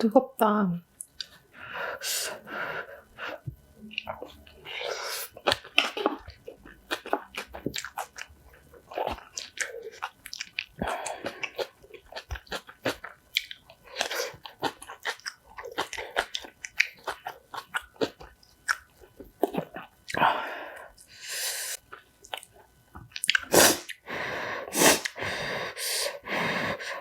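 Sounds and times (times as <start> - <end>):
crunchy chewing of food: 3.2 - 21.2, 21.8 - 24.0.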